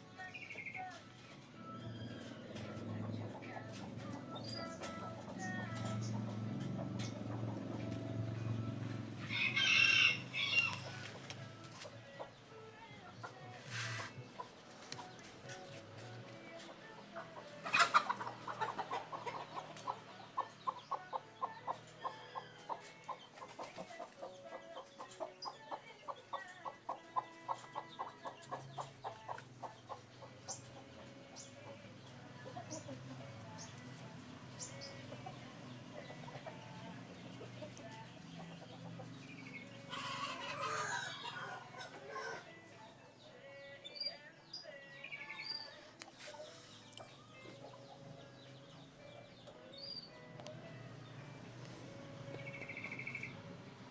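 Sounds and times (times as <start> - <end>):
chicken clucking: 13.1 - 43.2, 44.6 - 50.0.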